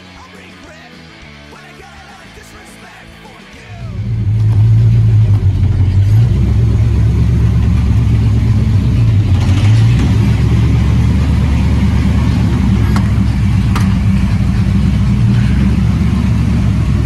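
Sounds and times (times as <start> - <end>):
car engine low rumble: 3.7 - 17.0.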